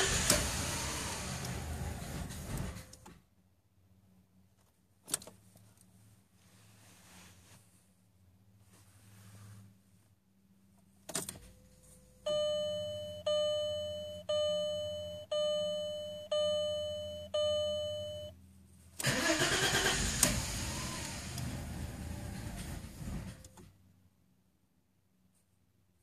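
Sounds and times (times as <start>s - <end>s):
car engine cranking: 0.0s - 3.1s, 19.0s - 23.6s
dashboard warning chime: 11.6s - 18.4s.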